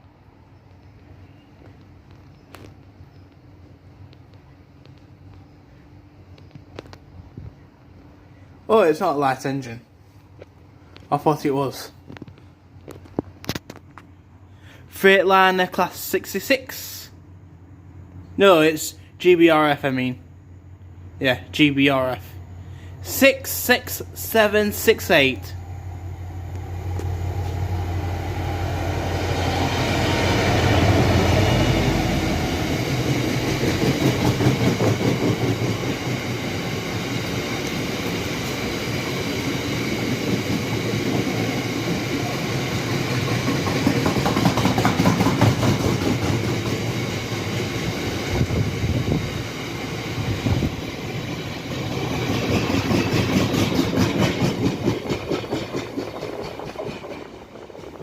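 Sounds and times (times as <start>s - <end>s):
diesel locomotive engine humming: 11.7s - 58.0s
wagon wheels clacking over rail joints: 43.0s - 47.0s, 51.7s - 58.0s.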